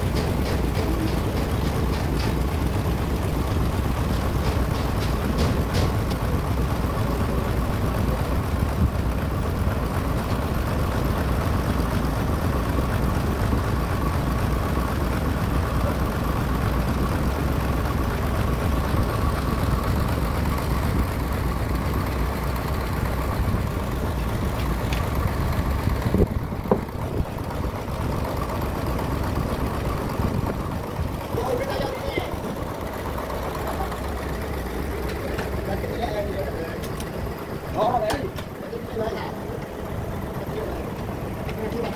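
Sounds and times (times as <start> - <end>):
band sawmill droning: 0.0 - 41.9
short knocks: 4.2 - 6.2.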